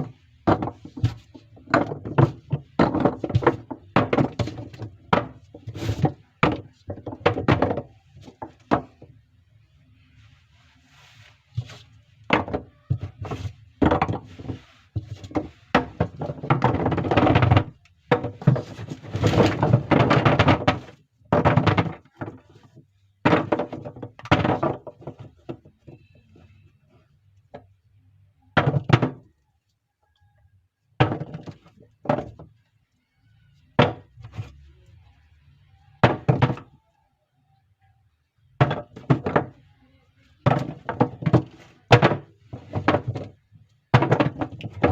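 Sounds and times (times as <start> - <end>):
bars and boxes thunking down: 0.0 - 9.1, 12.3 - 22.5, 23.2 - 26.0, 33.8 - 34.5, 36.0 - 36.8, 38.6 - 39.6, 40.4 - 44.9.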